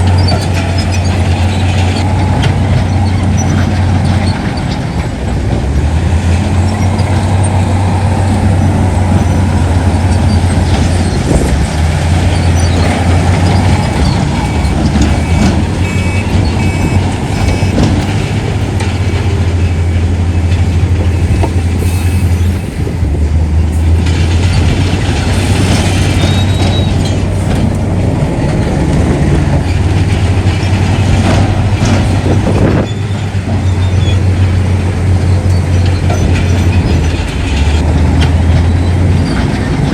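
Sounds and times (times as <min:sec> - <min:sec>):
diesel machinery engine drone: 0:00.0 - 0:39.9.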